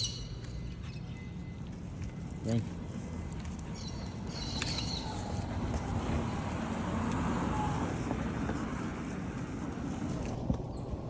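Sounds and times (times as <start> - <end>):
car passing: 4.0 - 11.0.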